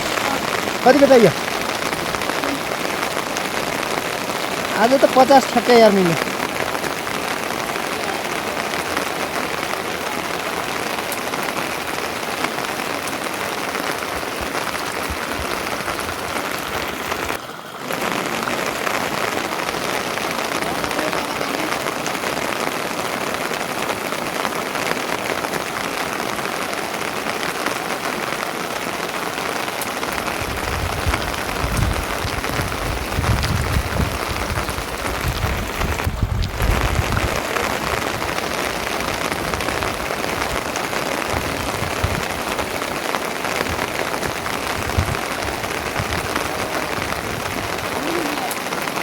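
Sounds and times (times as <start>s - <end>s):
heavy rain falling: 0.0s - 49.0s
low rumbling: 30.3s - 38.4s.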